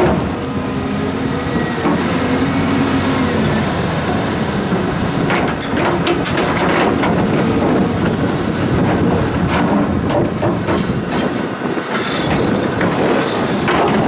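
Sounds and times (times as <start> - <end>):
excavator engine under load: 0.0 - 14.0
rock clattering against steel bucket: 8.8 - 14.0.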